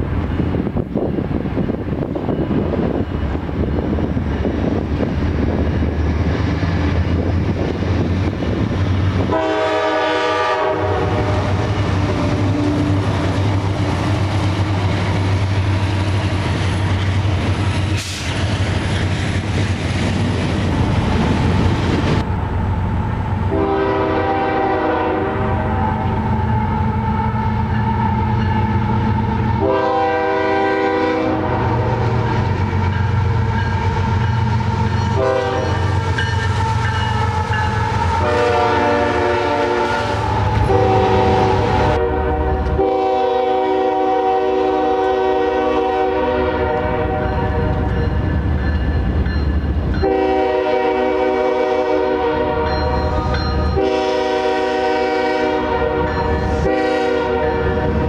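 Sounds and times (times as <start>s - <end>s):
passing train rumble: 0.0s - 58.0s
locomotive horn blasts: 9.2s - 13.3s, 23.5s - 33.0s, 35.1s - 36.0s, 36.7s - 48.0s, 50.0s - 58.0s.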